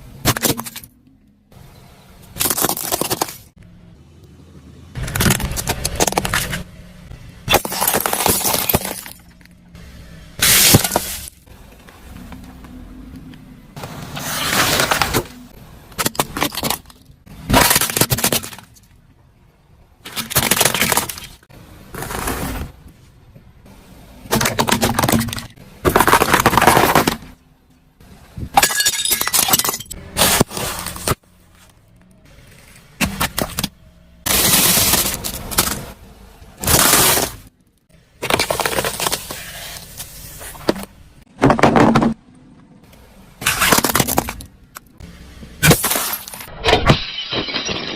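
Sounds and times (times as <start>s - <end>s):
objects crunching under car tyres: 2.2s - 3.6s, 5.0s - 6.8s, 7.4s - 9.8s, 10.4s - 13.1s, 13.8s - 19.0s, 20.0s - 23.3s, 24.2s - 27.4s, 28.4s - 37.6s, 38.2s - 45.0s, 45.6s - 47.9s.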